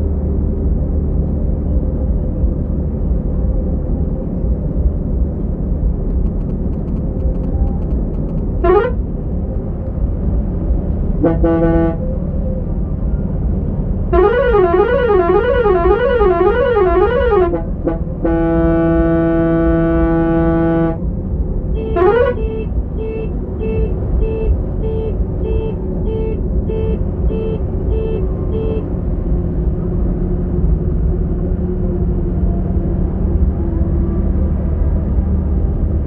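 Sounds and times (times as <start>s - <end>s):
diesel engine running: 0.0s - 36.0s
musical vehicle horn: 8.6s - 9.1s, 11.2s - 12.2s, 14.1s - 21.0s, 21.8s - 28.9s.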